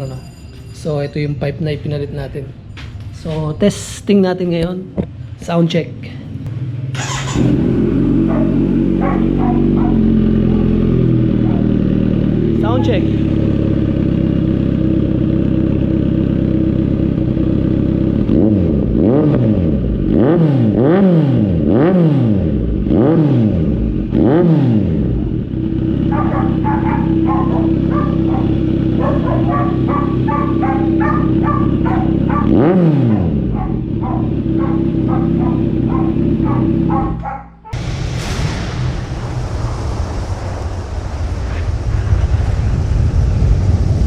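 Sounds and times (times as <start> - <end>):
motorcycle engine idling: 6.4 - 18.6, 25.1 - 37.4
motorcycle engine revs blipped: 6.4 - 37.8.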